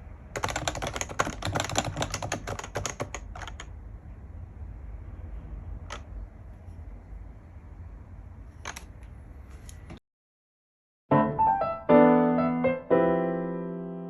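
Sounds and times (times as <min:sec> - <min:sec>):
low room rumble: 0:00.0 - 0:10.0.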